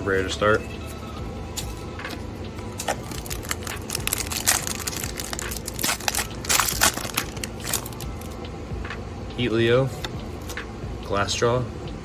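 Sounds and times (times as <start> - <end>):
foil pack crinkling and tearing: 2.7 - 8.3.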